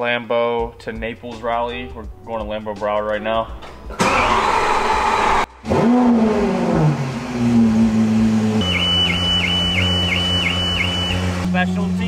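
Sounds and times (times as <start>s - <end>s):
car engine starting and idling: 3.3s - 12.0s
electronic warning chime: 8.6s - 11.4s.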